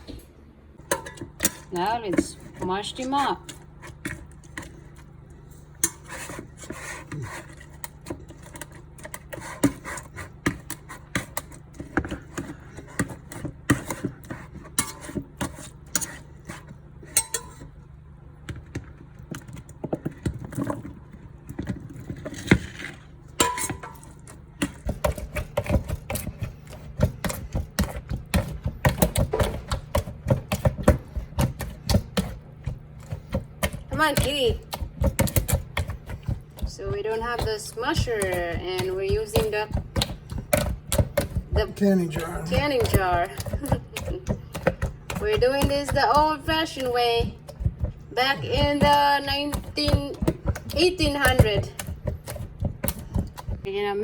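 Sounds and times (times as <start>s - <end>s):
berries squishing: 24.3s - 53.7s.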